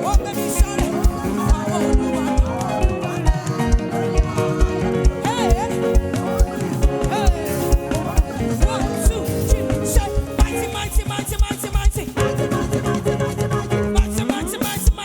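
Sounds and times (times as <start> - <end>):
worship band music: 0.0 - 15.0.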